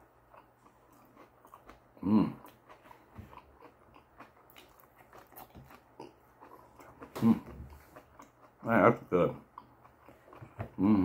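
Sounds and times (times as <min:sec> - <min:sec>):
person humming: 0:02.0 - 0:02.4, 0:10.6 - 0:11.0
chewing and wet mouth clicks: 0:02.4 - 0:07.2, 0:07.8 - 0:08.6.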